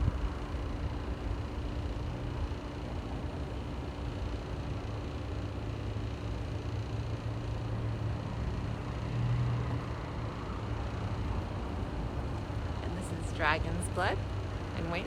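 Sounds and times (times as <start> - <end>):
street traffic rumble: 0.0 - 15.0
continuous rushing background: 9.8 - 15.0.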